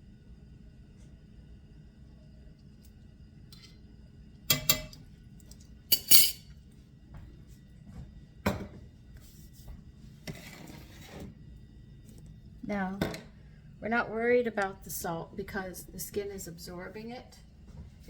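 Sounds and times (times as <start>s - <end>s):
dishes and utensils clinking: 4.5s - 5.0s, 5.9s - 6.4s.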